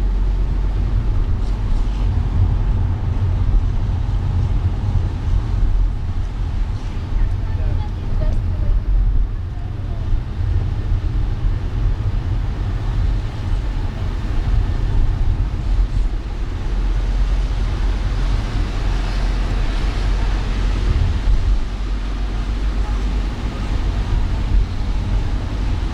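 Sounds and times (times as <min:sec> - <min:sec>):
car engine rumble: 0:00.0 - 0:25.9
tyres hissing on wet road: 0:09.7 - 0:25.9.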